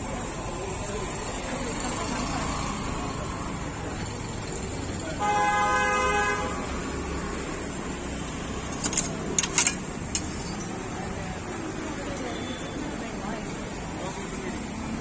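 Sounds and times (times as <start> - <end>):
street background noise: 0.0 - 15.0
vehicle horn: 5.2 - 6.7.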